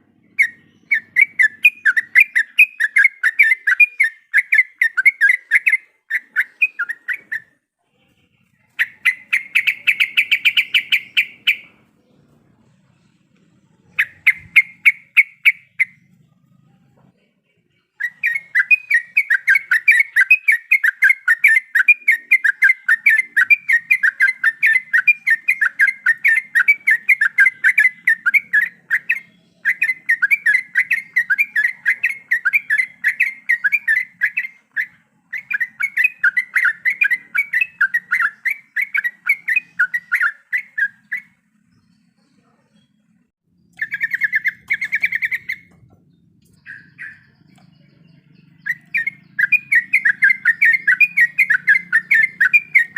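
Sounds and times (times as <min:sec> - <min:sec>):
bulbul singing rapid rolling notes: 0:08.5 - 0:16.6, 0:17.9 - 0:41.9, 0:43.1 - 0:52.9.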